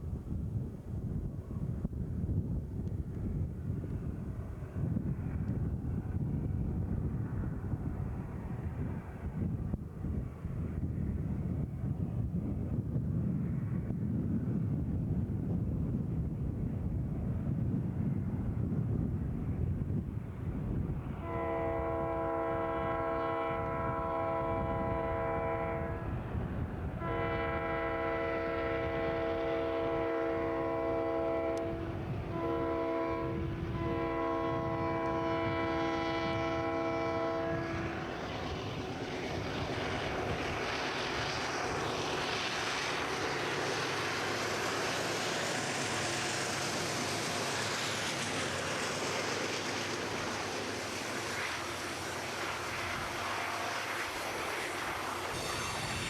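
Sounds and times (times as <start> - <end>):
train passing: 0.0 - 56.0
train air horn blasts: 21.2 - 26.2, 26.9 - 56.0.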